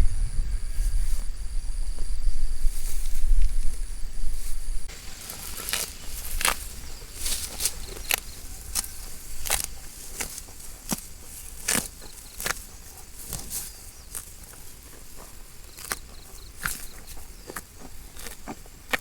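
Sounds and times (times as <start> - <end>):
faint insect chirps: 0.0 - 10.4
cows tearing grass: 2.3 - 19.0.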